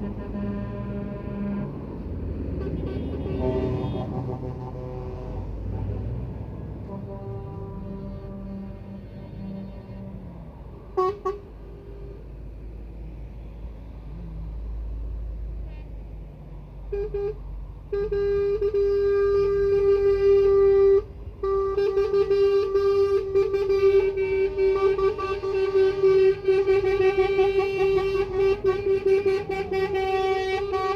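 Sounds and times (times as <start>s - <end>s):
truck air horns: 0.0s - 12.8s, 16.8s - 30.9s
truck engines rumbling: 0.0s - 30.9s.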